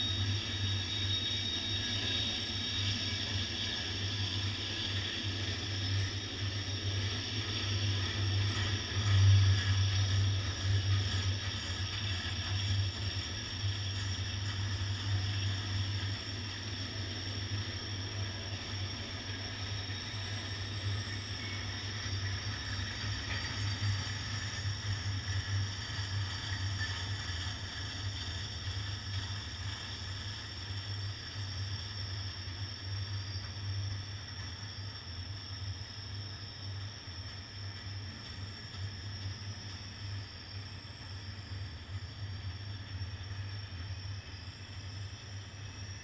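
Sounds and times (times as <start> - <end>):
freight train wheels rumbling: 0.0 - 35.4.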